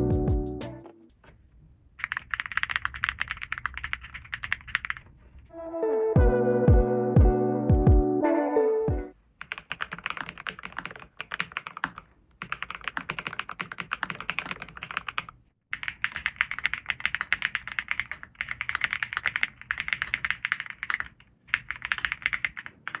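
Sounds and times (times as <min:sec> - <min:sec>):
mechanical keyboard typing: 0:02.0 - 0:05.0, 0:09.4 - 0:23.0.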